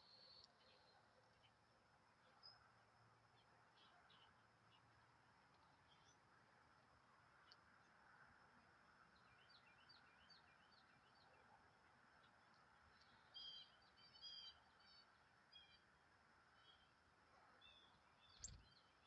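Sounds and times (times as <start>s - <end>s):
low steady background hiss: 0.0s - 19.0s
small bird chirps and twittering: 12.9s - 15.8s, 17.6s - 19.0s.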